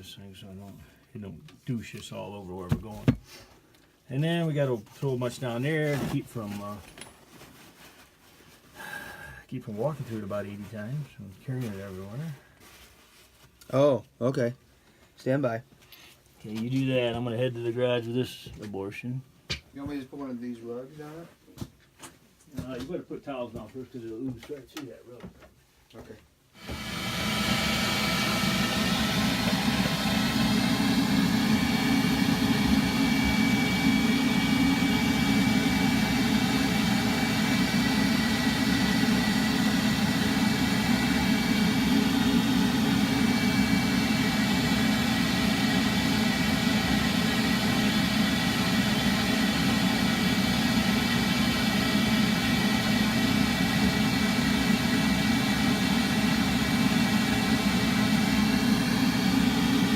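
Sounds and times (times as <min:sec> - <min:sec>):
machine motor droning and whining: 0:26.6 - 0:59.9.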